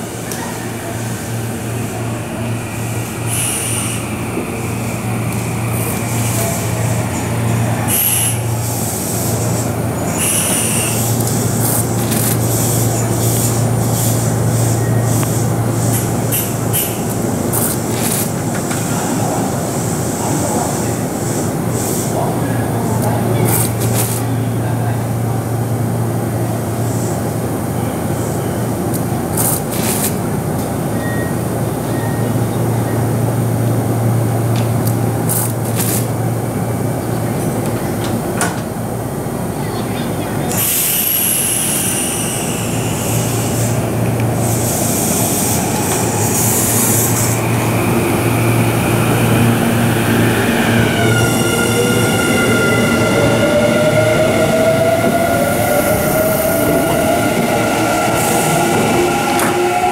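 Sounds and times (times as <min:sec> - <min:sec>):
train equipment humming: 0:28.4 - 0:59.9
station noise: 0:42.7 - 0:59.9.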